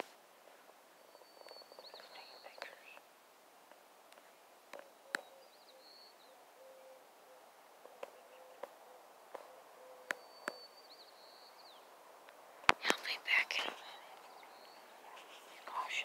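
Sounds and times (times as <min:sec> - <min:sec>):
songbird whistling: 0:01.0 - 0:02.9, 0:05.0 - 0:07.0, 0:09.4 - 0:11.8.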